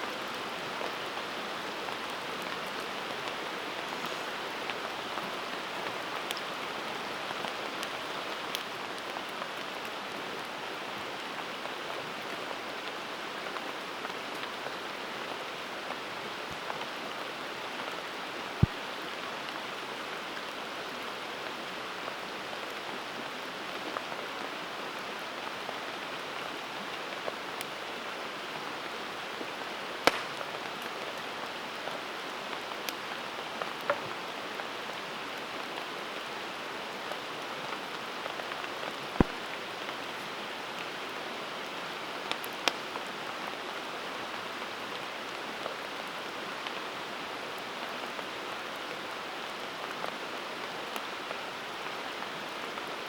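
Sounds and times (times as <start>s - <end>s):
campfire hissing: 1.8s - 6.4s, 29.5s - 32.1s
fire pops and cracks: 30.0s - 30.8s.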